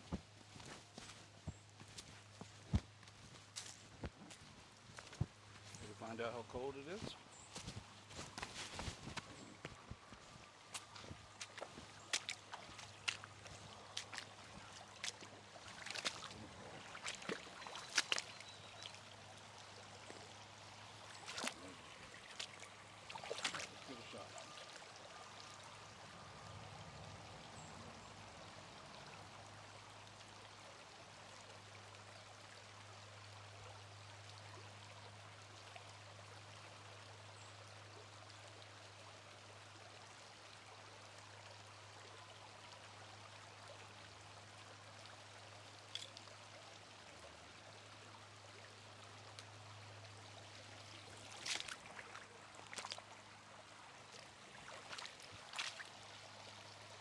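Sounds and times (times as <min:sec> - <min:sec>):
creek water flowing: 0:00.0 - 0:57.0.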